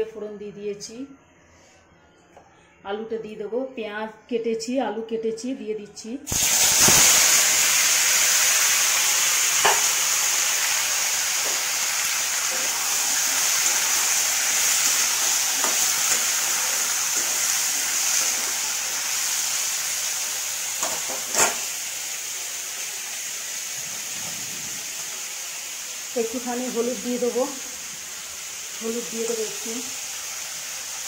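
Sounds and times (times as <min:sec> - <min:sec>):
potatoes sizzling in hot oil: 0:06.3 - 0:31.0.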